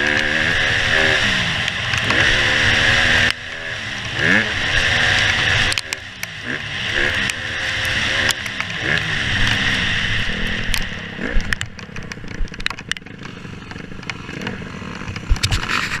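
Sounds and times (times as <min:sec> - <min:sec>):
dirt bike engine revving: 0:00.0 - 0:16.0
knocks and rattles: 0:10.7 - 0:16.0
wind noise on microphone: 0:15.2 - 0:16.0.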